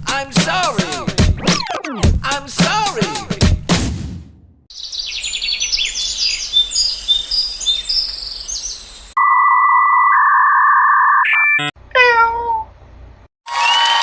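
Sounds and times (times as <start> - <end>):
birds chirping: 4.7 - 9.2
electronic beep tone: 9.2 - 11.8.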